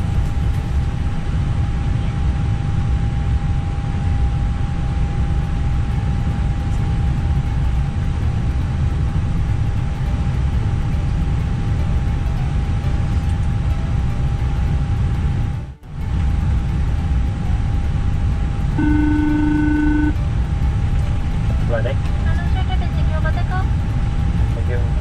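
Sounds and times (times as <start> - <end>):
airliner engines idling rumble: 0.0 - 25.0
mid-pitched whine: 0.0 - 25.0.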